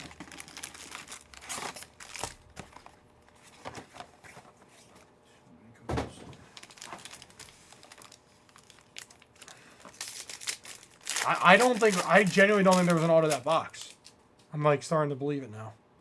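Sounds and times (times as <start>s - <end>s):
card packs crinkling: 0.0s - 4.5s, 6.1s - 14.1s
thump: 5.9s - 6.4s.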